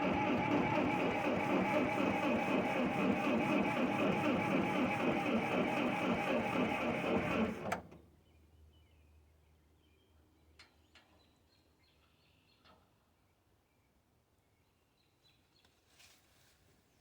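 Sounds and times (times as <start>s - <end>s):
starter cutting off click: 0.0s - 8.0s
starter motor cranking engine: 0.0s - 8.0s.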